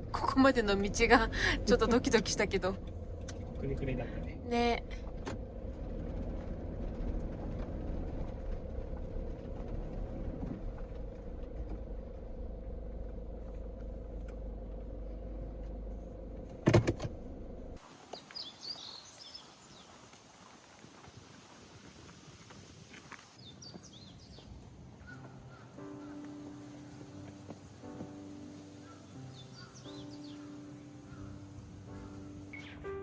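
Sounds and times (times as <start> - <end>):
van engine rumbling: 0.0 - 19.3, 23.2 - 33.0
birds chirping: 17.8 - 20.6, 23.2 - 33.0.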